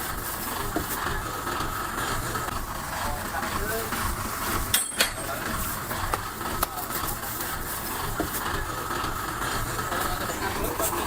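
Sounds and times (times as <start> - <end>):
heavy machinery rumbling: 0.0 - 11.0
sharp metallic clanks: 4.7 - 5.4.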